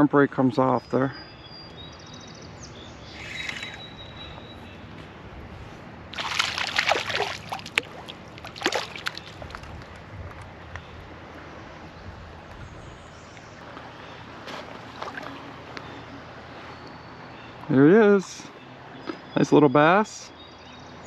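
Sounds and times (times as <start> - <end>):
stream flowing: 2.7 - 20.4
water splashing in a creek: 6.0 - 18.4.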